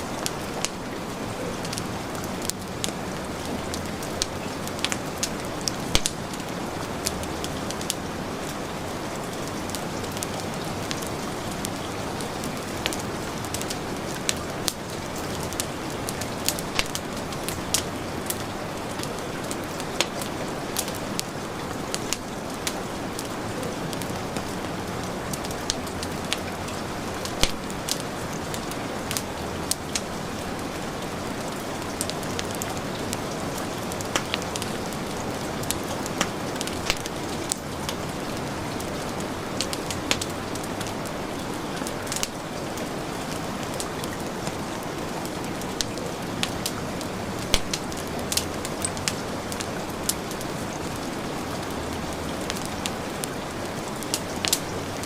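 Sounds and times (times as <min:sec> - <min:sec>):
heavy rain: 0:00.0 - 0:55.0
wood fire crackling: 0:00.0 - 0:55.0.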